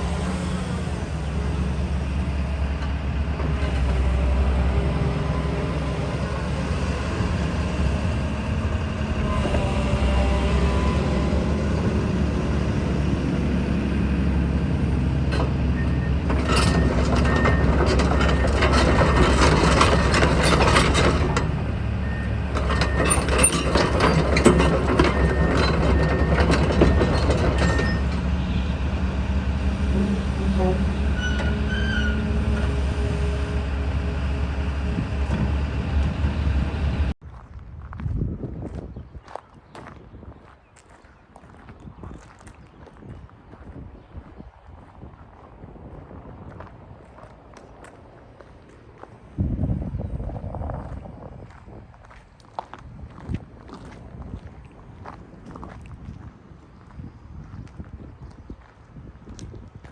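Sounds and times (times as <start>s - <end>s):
excavator diesel engine running: 0.0s - 37.2s
steel tracks clanking and squealing: 0.0s - 37.2s.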